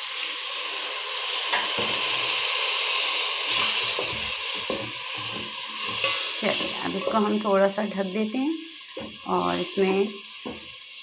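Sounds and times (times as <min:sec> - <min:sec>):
masala sizzling in hot oil: 0:00.0 - 0:11.0
wooden spatula scraping pot: 0:03.5 - 0:07.4.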